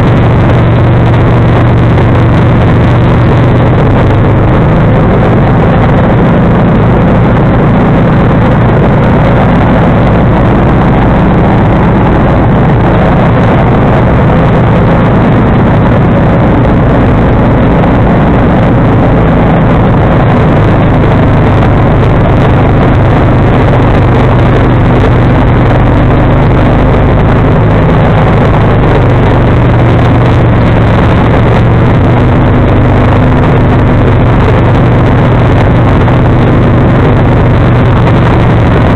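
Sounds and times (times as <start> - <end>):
garden tractor engine running: 0.0 - 38.9.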